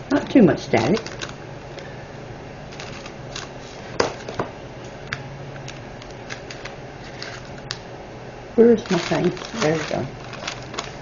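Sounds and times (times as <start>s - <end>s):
plastic bags rustling: 0.1s - 1.9s, 2.7s - 4.4s, 8.7s - 11.0s.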